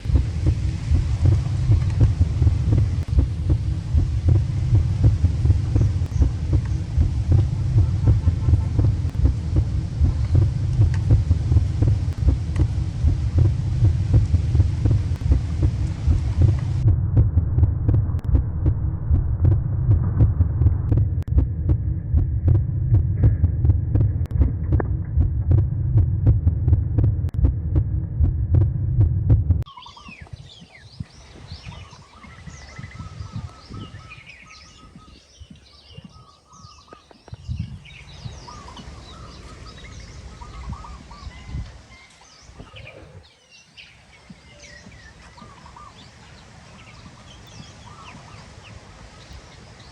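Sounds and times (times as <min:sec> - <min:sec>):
birds chirping: 0:00.0 - 0:16.8, 0:29.7 - 0:49.9
loud low throbbing rumble: 0:00.0 - 0:35.1.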